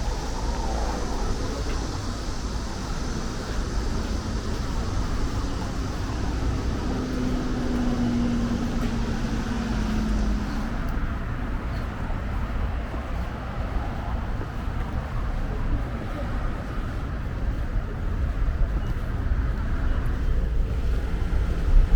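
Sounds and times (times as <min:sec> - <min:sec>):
cicadas hissing: 0:00.0 - 0:13.6
passing vehicle hum: 0:00.0 - 0:16.8
road traffic rumble: 0:00.0 - 0:21.9.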